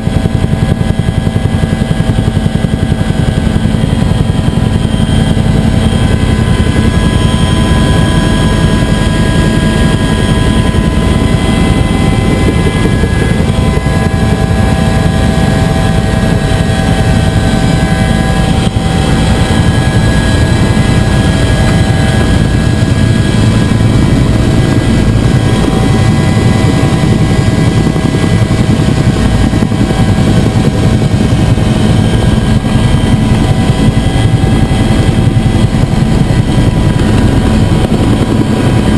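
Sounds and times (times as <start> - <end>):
helicopter rotor and turbine noise: 0.0 - 38.9
high whine: 0.0 - 38.9.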